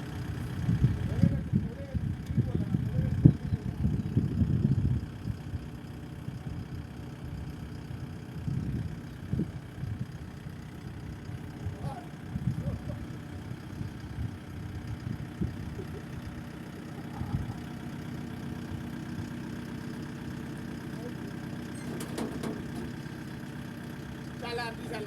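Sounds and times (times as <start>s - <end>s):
engine idling: 0.0s - 25.0s
short clatter: 21.6s - 23.2s.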